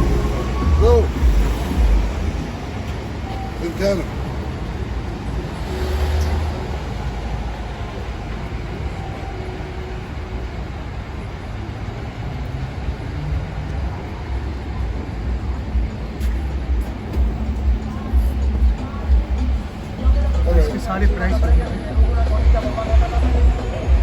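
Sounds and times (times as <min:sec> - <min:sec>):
low engine rumble: 0:00.0 - 0:24.0.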